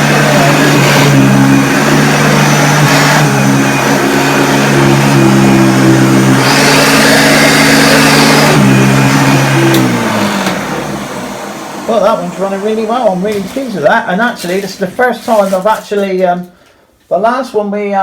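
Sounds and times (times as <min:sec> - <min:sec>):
person speaking: 0:00.0 - 0:03.0, 0:11.8 - 0:18.0
vacuum cleaner running: 0:00.0 - 0:15.5.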